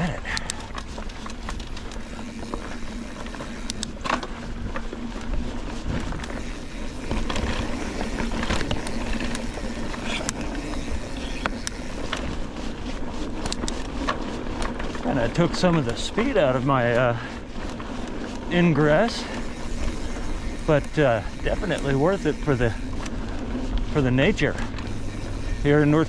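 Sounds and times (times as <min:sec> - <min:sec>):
bike clicks and rattles: 0:00.0 - 0:26.0
tyre and wind noise: 0:00.0 - 0:26.0.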